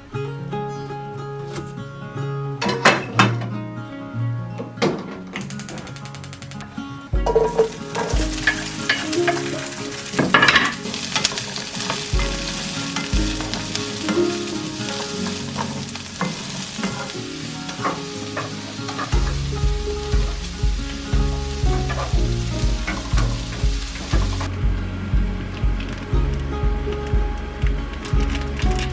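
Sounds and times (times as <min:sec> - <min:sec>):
soft background music: 0:00.0 - 0:28.9
food sizzling in a frying pan: 0:07.4 - 0:24.6.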